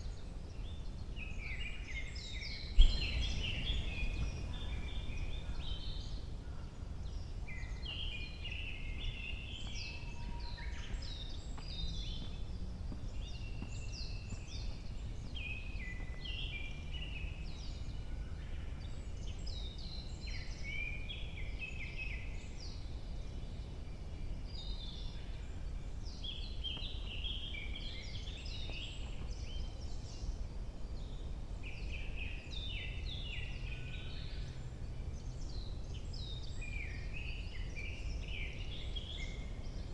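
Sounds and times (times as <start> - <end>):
wild birds singing: 0.0 - 39.9
steady low rumble: 2.6 - 7.2.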